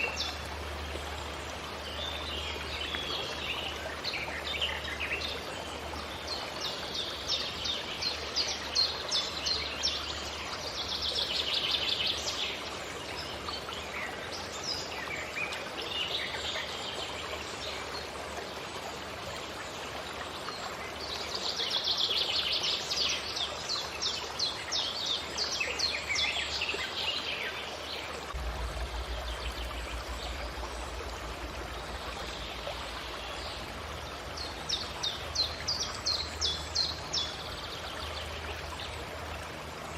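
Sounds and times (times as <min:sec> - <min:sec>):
steady rushing noise: 0:28.3 - 0:35.7.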